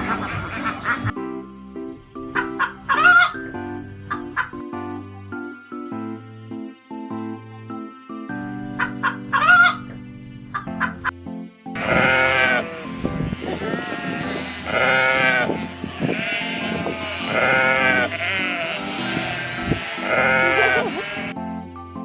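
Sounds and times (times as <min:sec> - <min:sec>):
background music: 0:00.0 - 0:22.0
sheep bleating: 0:11.8 - 0:21.4.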